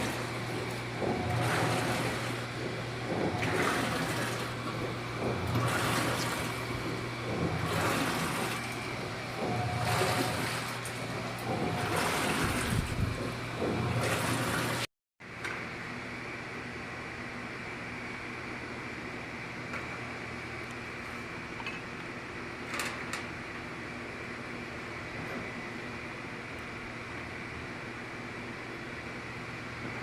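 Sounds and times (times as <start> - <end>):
motor hum: 0.0 - 14.9
water sloshing in washing machine: 0.0 - 15.4.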